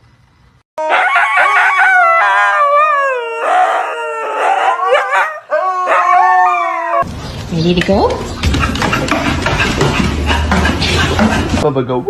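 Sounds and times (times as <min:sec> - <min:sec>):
dog howling: 0:00.8 - 0:07.0.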